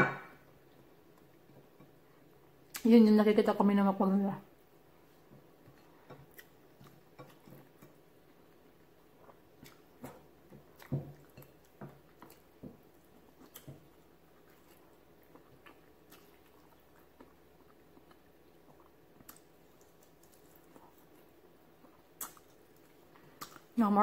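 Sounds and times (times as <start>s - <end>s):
person chewing: 5.4s - 23.8s.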